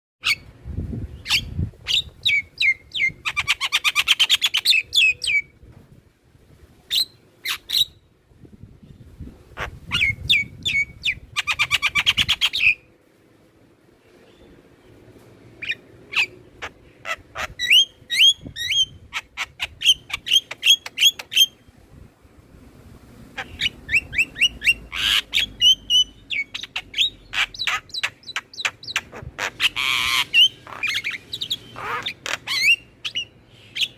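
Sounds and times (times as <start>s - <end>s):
mynas chattering and calling: 23.4s - 33.2s.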